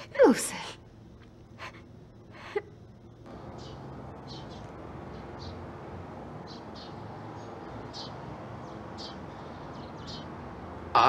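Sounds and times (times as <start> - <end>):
small birds chirping: 2.4 - 5.7, 6.4 - 11.0.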